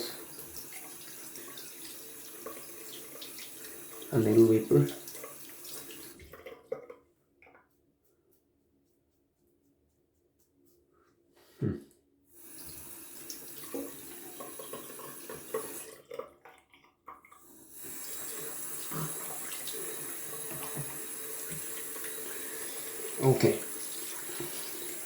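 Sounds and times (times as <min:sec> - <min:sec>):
tap running into a sink: 0:12.6 - 0:16.4, 0:17.1 - 0:25.0
splashing and rinsing: 0:12.7 - 0:25.0.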